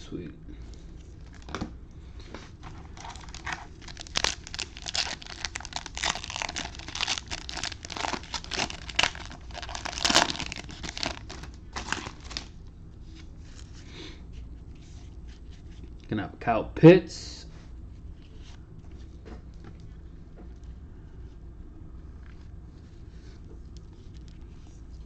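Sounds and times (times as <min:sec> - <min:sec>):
foil wrapper tearing and crinkling: 0:02.7 - 0:12.5.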